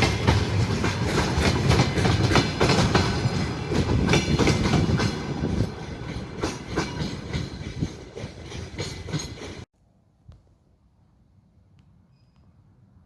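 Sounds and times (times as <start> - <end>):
train wheels clacking over rail joints: 0.0 - 9.7.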